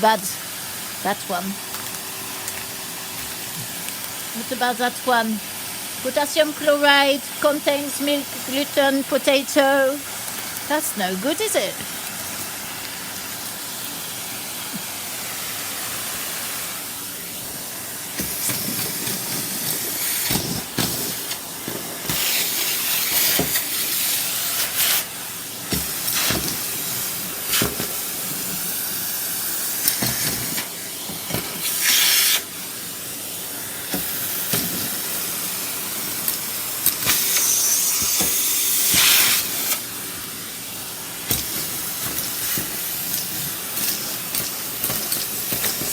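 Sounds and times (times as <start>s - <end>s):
vacuum cleaner running: 0.0s - 45.9s
debris rattling up vacuum hose: 10.1s - 45.9s.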